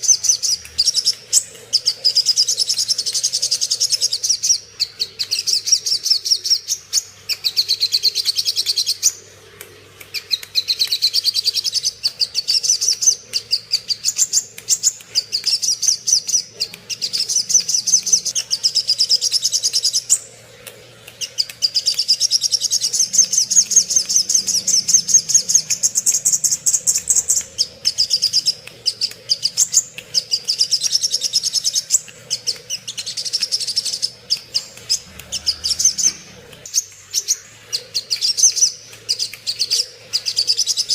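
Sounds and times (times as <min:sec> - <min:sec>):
bird rapid chirping trills: 0:21.2 - 0:40.9.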